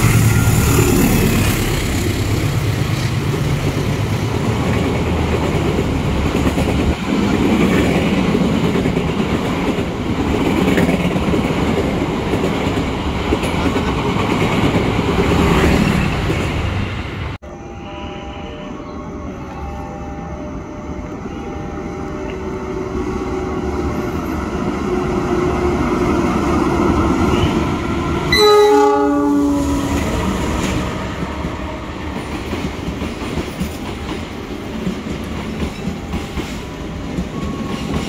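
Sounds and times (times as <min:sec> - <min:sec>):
train horn blast: 0:17.4 - 0:23.4, 0:28.3 - 0:30.1.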